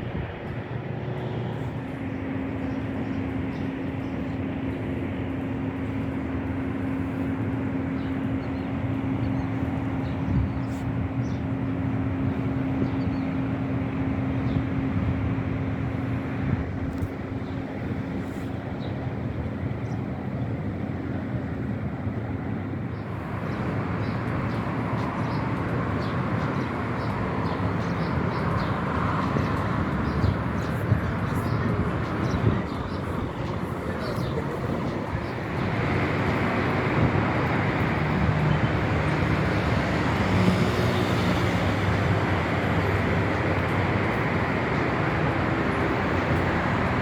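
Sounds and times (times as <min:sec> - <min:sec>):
road traffic noise: 0:00.0 - 0:47.0.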